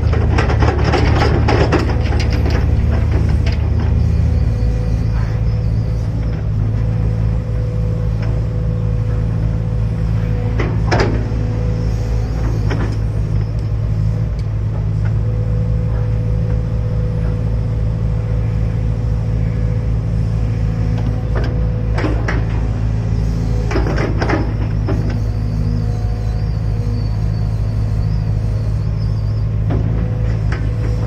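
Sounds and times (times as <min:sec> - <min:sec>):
diesel engine humming: 0:00.0 - 0:31.0.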